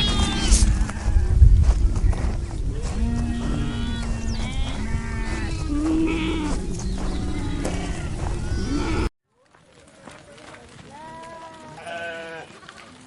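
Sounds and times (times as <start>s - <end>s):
flock bleating: 11.8s - 12.5s.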